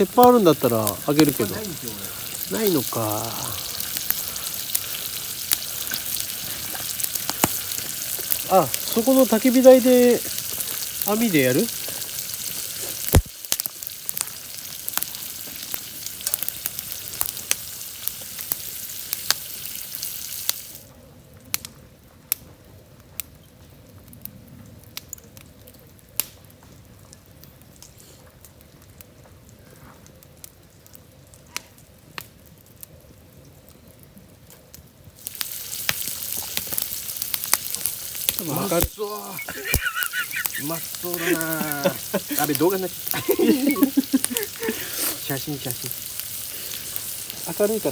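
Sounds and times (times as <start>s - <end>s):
food sizzling in hot oil: 0.0s - 20.9s, 35.1s - 47.9s.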